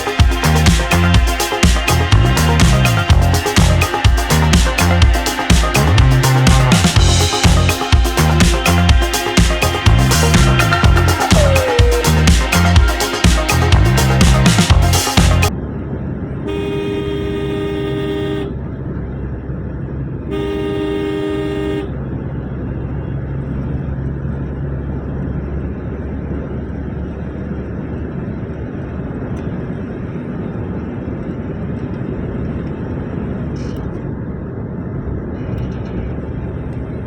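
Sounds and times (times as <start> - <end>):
road and engine rumble: 0.0 - 37.0
two-tone vehicle horn blasts: 16.5 - 18.6, 20.3 - 22.0.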